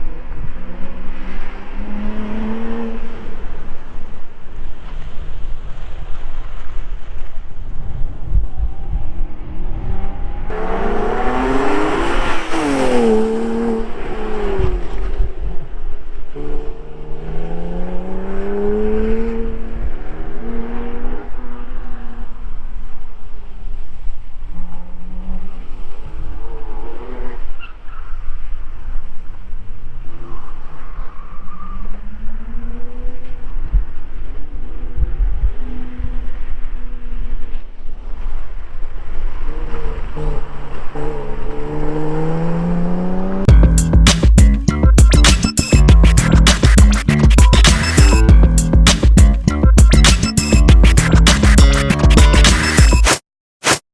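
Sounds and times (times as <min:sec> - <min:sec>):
car engine passing at speed: 0:00.0 - 0:06.8, 0:08.0 - 0:28.6, 0:29.2 - 0:43.5
car engine accelerating hard: 0:09.7 - 0:22.6, 0:39.3 - 0:44.1.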